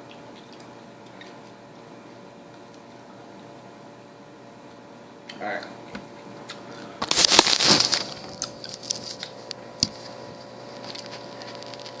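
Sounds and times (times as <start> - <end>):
loud rustle: 7.0 - 8.2.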